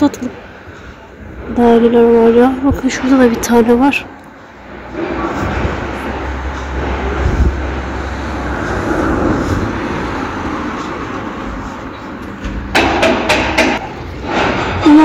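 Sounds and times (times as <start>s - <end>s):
passing road traffic: 0.0s - 15.0s
low rumble: 1.0s - 12.2s
sharp clicks or knocks: 12.4s - 14.6s.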